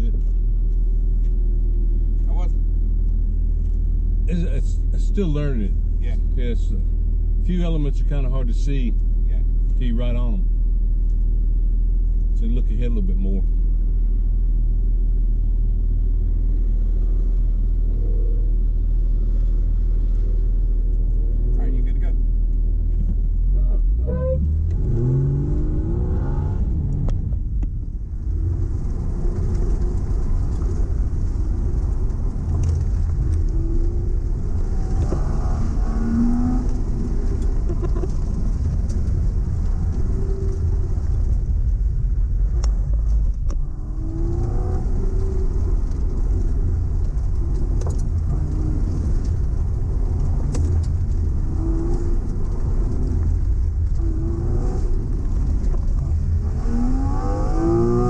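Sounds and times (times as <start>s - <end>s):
car engine revving: 16.0s - 58.0s.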